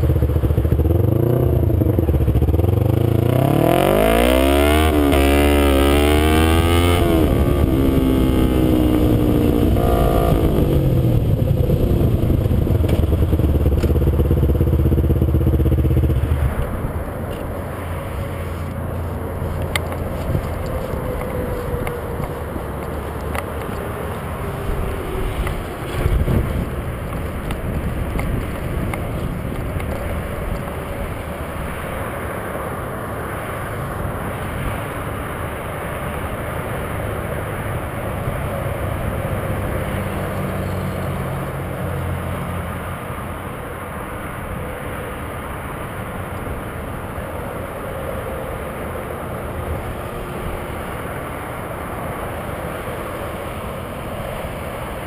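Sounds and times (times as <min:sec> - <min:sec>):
motorcycle engine running: 0:00.0 - 0:31.8
wind and road rush: 0:00.0 - 0:55.0.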